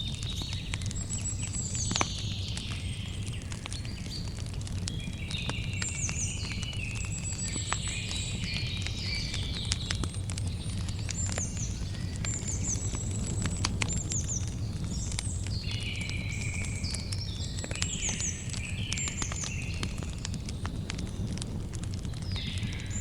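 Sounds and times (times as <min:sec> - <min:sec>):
campfire crackling: 0:00.0 - 0:23.0
birds chirping: 0:00.1 - 0:23.0.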